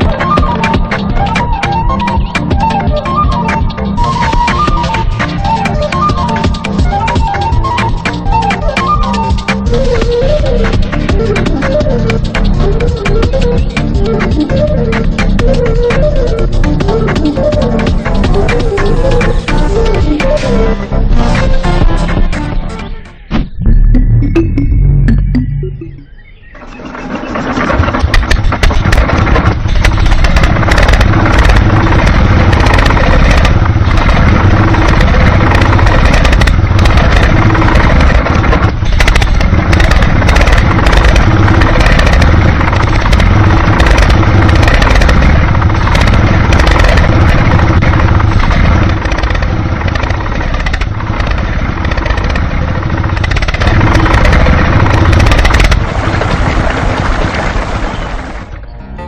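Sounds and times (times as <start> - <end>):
rapid rattling clicks: 0.0 - 20.6, 26.8 - 57.7
motor running with low rumble: 23.9 - 58.7.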